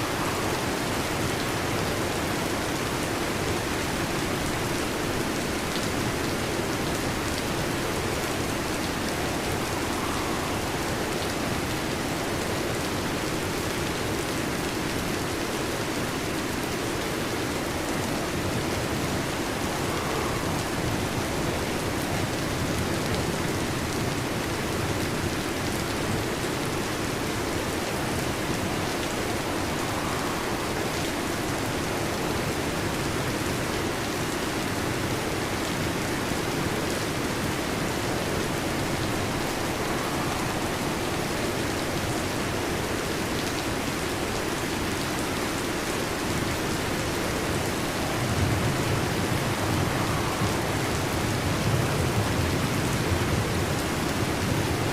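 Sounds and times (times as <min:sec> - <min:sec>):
heavy rain falling: 0:00.0 - 0:54.9
low rumble of thunder: 0:18.0 - 0:25.0, 0:47.0 - 0:54.9.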